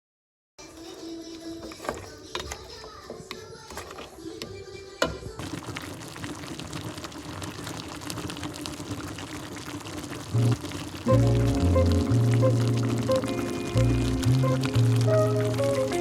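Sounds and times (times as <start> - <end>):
water pouring: 5.3 - 16.0.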